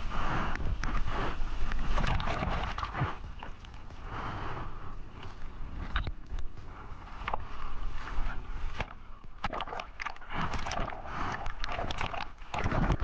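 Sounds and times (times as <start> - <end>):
sea water splashing: 1.8 - 3.6, 8.8 - 13.0.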